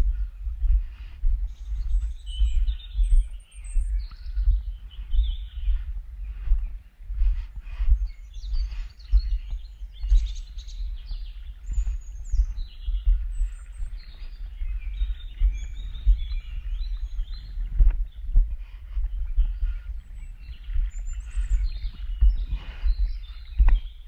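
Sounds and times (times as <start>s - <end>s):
low rumble with thumps: 0.0s - 24.0s
songbirds chirping: 0.0s - 24.0s.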